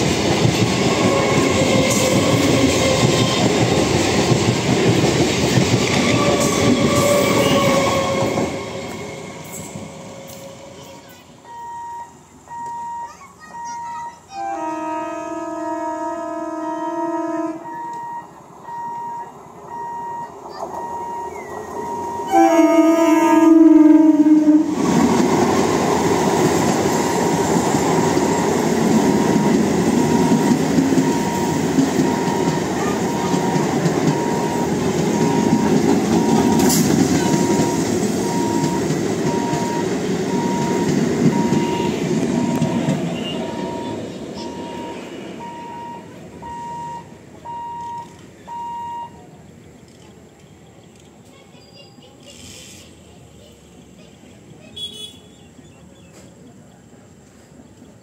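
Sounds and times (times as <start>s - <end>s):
train passing with rumble: 0.0s - 54.6s
train horn: 6.0s - 9.6s, 14.4s - 18.0s, 22.2s - 24.8s, 41.3s - 44.0s
level crossing warning beeps: 11.4s - 14.3s, 17.6s - 22.4s, 28.1s - 49.3s.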